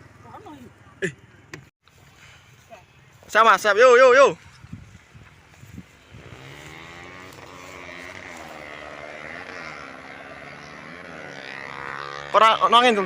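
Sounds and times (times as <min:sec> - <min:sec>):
kite hummer droning: 0:04.4 - 0:13.0.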